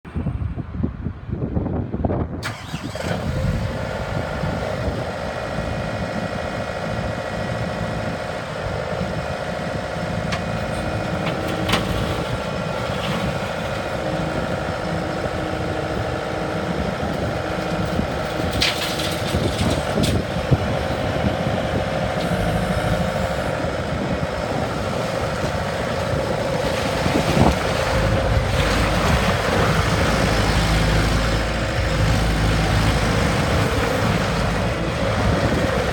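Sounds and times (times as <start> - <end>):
diesel engine running: 2.4 - 35.9.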